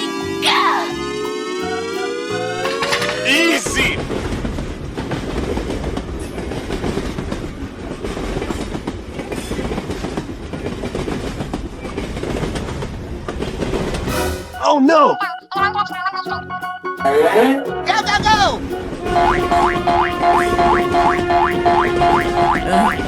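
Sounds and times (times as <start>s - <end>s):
train rolling on track: 1.0s - 14.7s, 17.8s - 23.0s
wheels clicking over rail joints: 4.0s - 14.1s.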